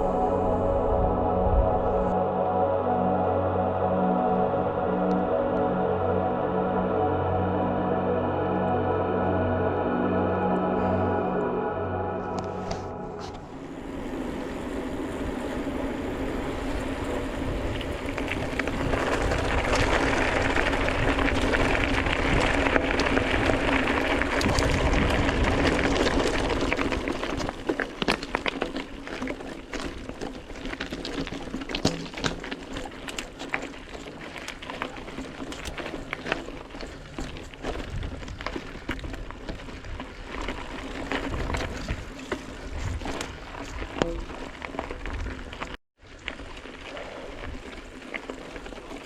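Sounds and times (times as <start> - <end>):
tyre and wind noise: 12.6 - 49.0
bike rattling over stones: 13.2 - 49.0.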